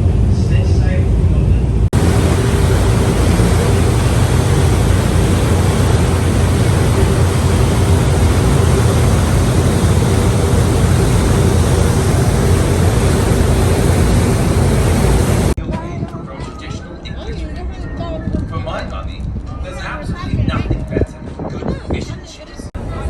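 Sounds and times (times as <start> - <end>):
boat engine running: 1.9 - 15.6
loud even hiss: 1.9 - 15.6.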